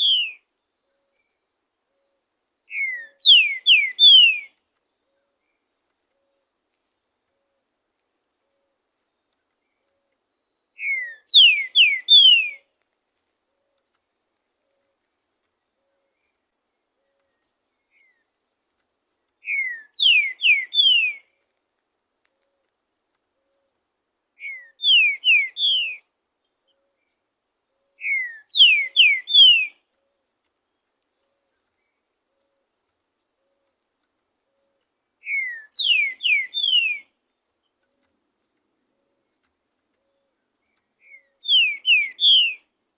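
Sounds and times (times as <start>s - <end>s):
bird singing slurred whistles: 0.0s - 0.4s, 2.7s - 4.5s, 10.8s - 12.6s, 19.4s - 21.3s, 24.4s - 26.0s, 27.9s - 29.8s, 35.2s - 37.1s, 41.0s - 42.7s.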